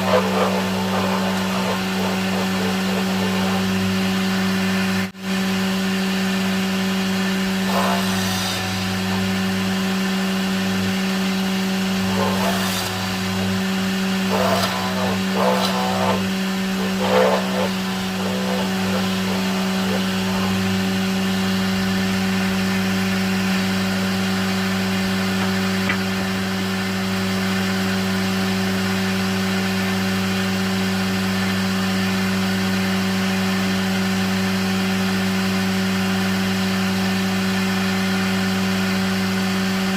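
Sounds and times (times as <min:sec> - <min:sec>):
tool rasping into wood: 0:00.0 - 0:04.5, 0:07.6 - 0:09.5, 0:11.9 - 0:21.7
power tool motor humming: 0:00.0 - 0:26.1.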